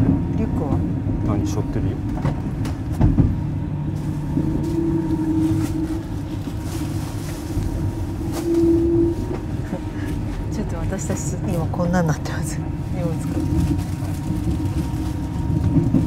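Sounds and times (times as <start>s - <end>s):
train carriage rumble: 0.0s - 16.0s
humming tone: 2.6s - 10.6s.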